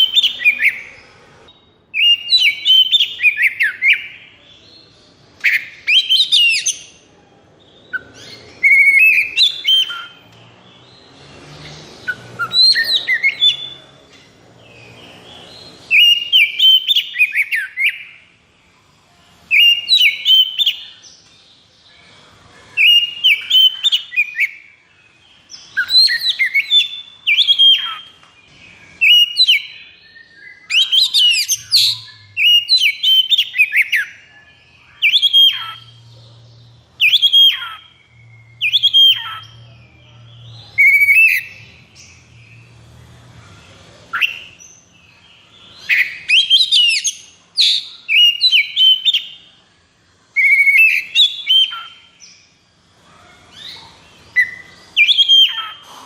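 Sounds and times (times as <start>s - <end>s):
bird singing whistled phrases: 1.6s - 4.2s, 5.4s - 6.9s, 7.9s - 10.2s, 12.0s - 13.8s, 15.9s - 18.2s, 19.5s - 21.0s, 22.8s - 24.7s, 25.6s - 28.2s, 29.0s - 36.1s, 37.0s - 41.7s, 44.1s - 44.6s, 45.8s - 49.4s, 50.4s - 52.3s, 54.3s - 55.8s.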